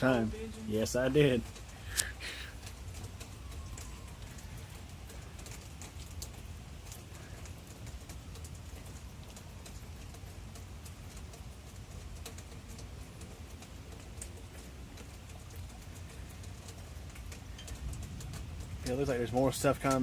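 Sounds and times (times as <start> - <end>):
rain ticking on hard surface: 0.0 - 20.0
low thunder rumble: 2.3 - 9.3, 16.5 - 20.0.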